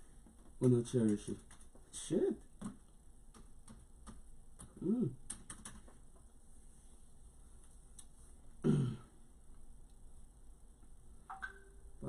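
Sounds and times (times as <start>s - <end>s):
light clicks and taps: 0.2s - 4.8s
short vocal sound: 4.8s - 5.2s.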